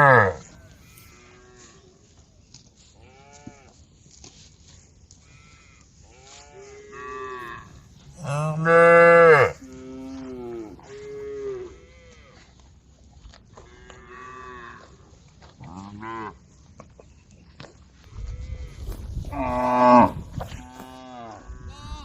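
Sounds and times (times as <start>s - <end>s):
cows mooing: 0.0s - 1.7s, 6.1s - 12.4s, 18.4s - 22.0s.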